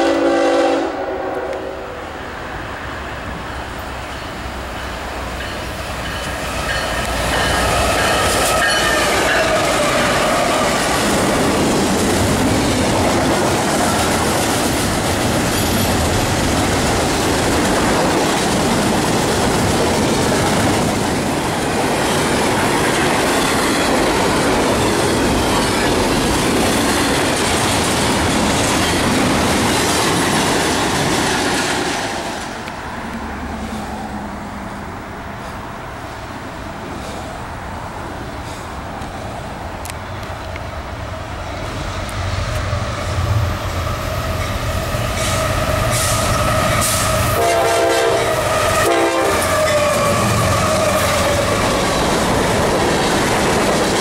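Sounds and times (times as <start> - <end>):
freight train rumble: 0.0 - 54.0
wheels clacking over rail joints: 3.6 - 33.2, 44.3 - 54.0.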